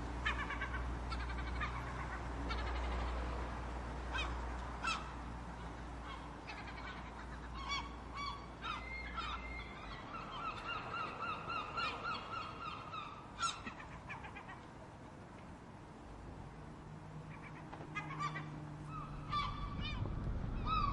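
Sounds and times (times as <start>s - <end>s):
gulls calling harshly: 17.3s - 20.9s.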